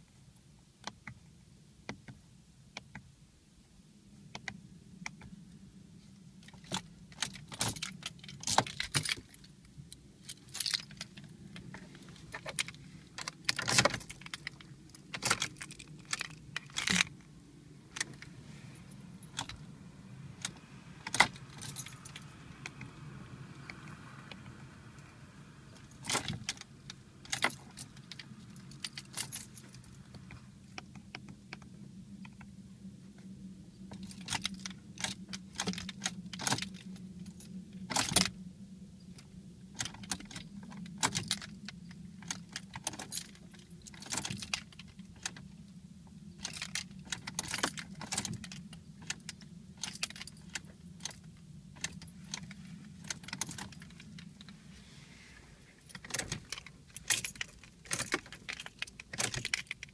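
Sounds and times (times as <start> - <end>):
low steady hum: 0.0 - 59.9
keys jangling and clicking: 6.5 - 9.5, 10.2 - 17.2, 20.4 - 22.8, 25.8 - 30.2, 33.9 - 38.3, 39.8 - 45.4, 46.4 - 54.5, 55.8 - 59.9.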